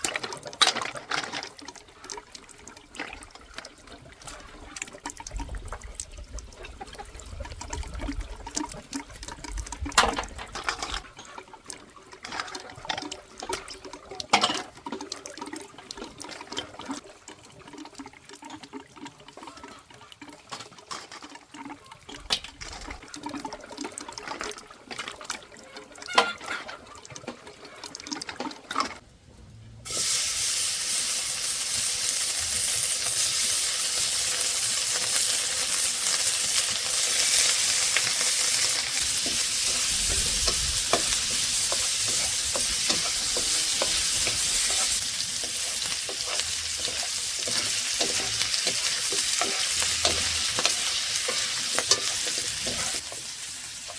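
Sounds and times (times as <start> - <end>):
water splashing and trickling: 0.0 - 53.9
food sizzling in hot pan: 29.9 - 53.9.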